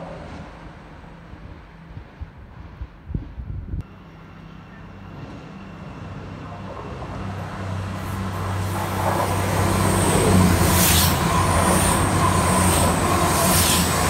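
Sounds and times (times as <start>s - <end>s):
diesel train engine drone: 0.0s - 14.0s
train passing whoosh: 0.0s - 14.0s
train wheels rushing on rail: 0.0s - 14.0s.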